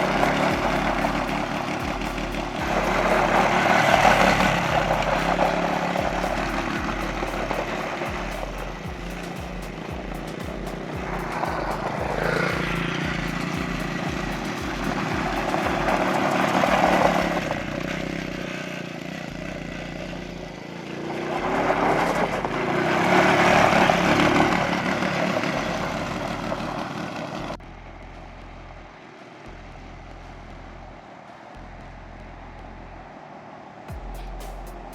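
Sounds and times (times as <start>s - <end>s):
atv engines revving high: 0.0s - 31.0s.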